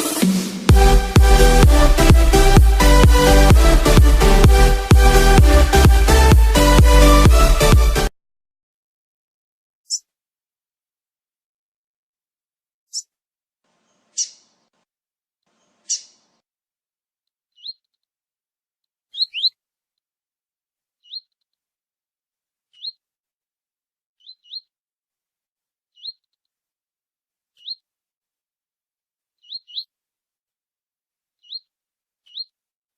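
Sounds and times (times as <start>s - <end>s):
small bird chirping: 9.9s - 10.1s, 12.9s - 13.1s, 14.1s - 14.5s, 15.8s - 16.2s, 17.5s - 18.0s, 19.1s - 19.6s, 21.0s - 21.5s, 22.7s - 23.0s, 24.2s - 24.7s, 25.9s - 26.4s, 27.6s - 27.9s, 29.4s - 29.9s, 31.4s - 32.6s.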